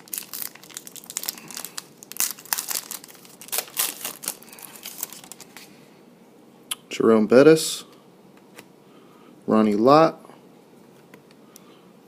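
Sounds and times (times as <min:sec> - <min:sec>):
foil wrappers crinkling: 0:00.0 - 0:05.7.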